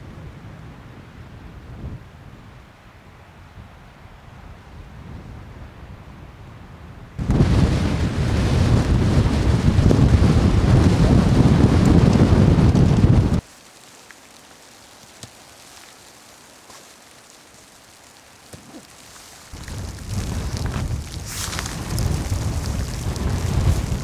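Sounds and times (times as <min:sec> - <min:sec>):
faint wind hiss: 0:00.0 - 0:24.0
wind buffeting microphone: 0:04.8 - 0:13.4, 0:19.5 - 0:24.0.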